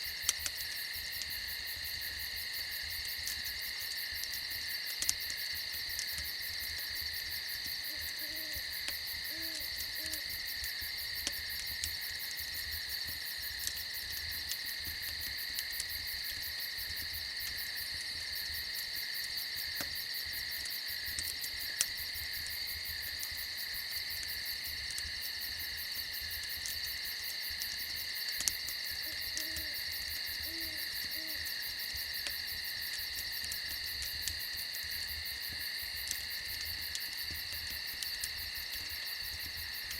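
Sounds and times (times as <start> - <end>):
campfire crackling: 0.0 - 39.9
crickets chirping: 0.0 - 39.9
owl hooting: 7.9 - 8.6, 9.3 - 10.2, 29.0 - 29.8, 30.4 - 31.4.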